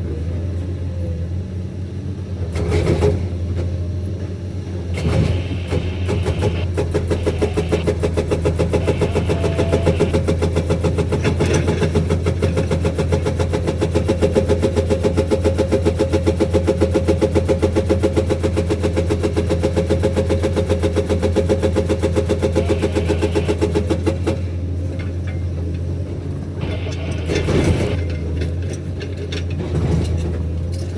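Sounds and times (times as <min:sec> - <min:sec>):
diesel engine running: 0:00.0 - 0:30.9
hydraulic breaker hammering: 0:04.9 - 0:14.0, 0:26.6 - 0:29.0.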